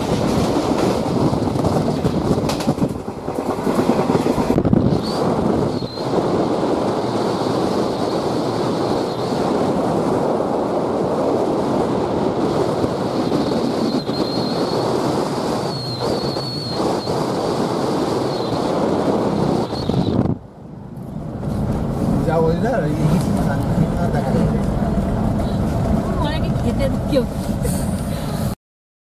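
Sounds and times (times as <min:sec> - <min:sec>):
train rushing rumble: 0:00.0 - 0:28.6
wind on microphone: 0:00.0 - 0:28.6
faint high squeal: 0:05.0 - 0:06.2, 0:13.3 - 0:15.0, 0:15.6 - 0:17.4.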